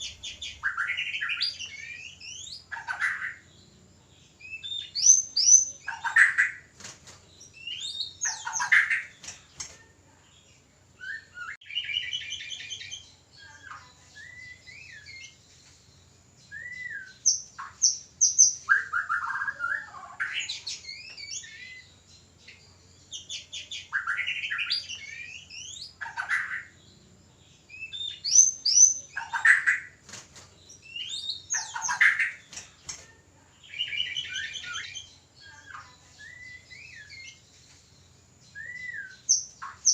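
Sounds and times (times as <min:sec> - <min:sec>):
harsh bird chattering calls: 0:00.0 - 0:03.5, 0:07.5 - 0:09.7, 0:23.4 - 0:26.8, 0:28.1 - 0:30.0, 0:30.8 - 0:33.1
songbird whistles and trills: 0:00.0 - 0:03.5, 0:04.3 - 0:10.2, 0:11.0 - 0:26.8, 0:27.6 - 0:30.0, 0:30.7 - 0:39.9.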